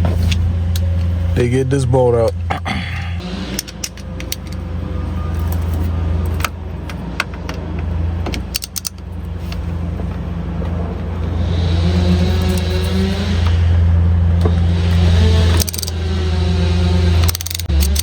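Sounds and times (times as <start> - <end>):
steady low drone: 0.0 - 7.0
hand tools clicking and rattling: 8.4 - 9.6, 15.5 - 16.0, 17.2 - 18.0.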